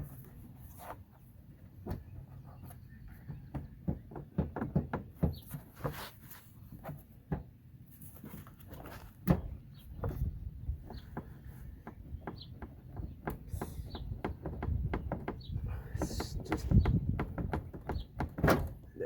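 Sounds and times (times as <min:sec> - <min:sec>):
plastic clicks knocks and creaks: 0:03.2 - 0:05.6, 0:09.2 - 0:18.8.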